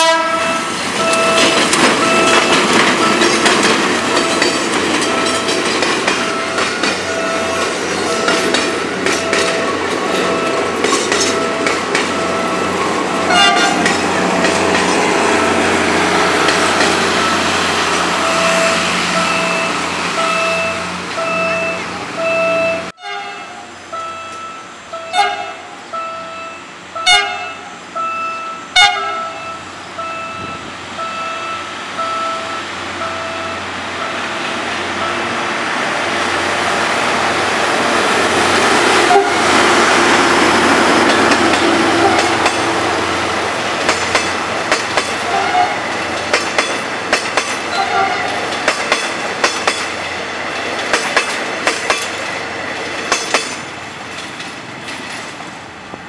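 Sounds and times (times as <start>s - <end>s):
passenger train passing: 0.0s - 56.0s
wheels clattering over rail joints: 0.7s - 22.2s, 36.2s - 56.0s
pulsing warning tone: 4.1s - 10.7s, 11.3s - 13.6s, 17.0s - 22.9s.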